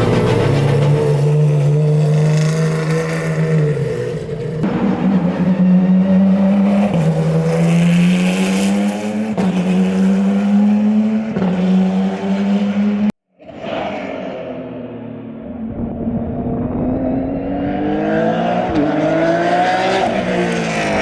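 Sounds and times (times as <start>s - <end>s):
quieter engine: 0.0s - 8.2s
race car engine revving through gears: 0.0s - 21.0s.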